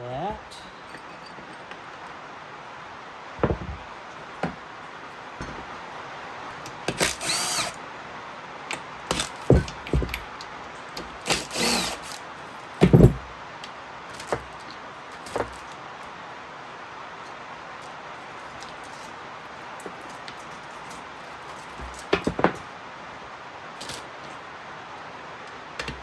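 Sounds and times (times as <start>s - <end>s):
sharp metal clunks: 3.4s - 4.6s, 5.4s - 5.8s, 8.7s - 10.3s, 12.8s - 13.3s
impact wrench whining: 6.7s - 7.8s, 9.1s - 10.2s, 11.2s - 12.2s.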